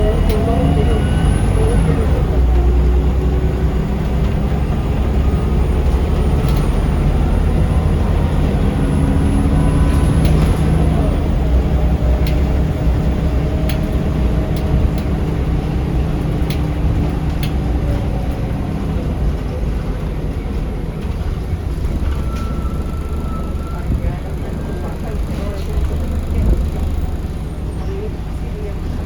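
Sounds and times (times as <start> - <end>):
bus engine rumble and whine: 0.0 - 29.0
light rattles and clicks: 9.6 - 19.9.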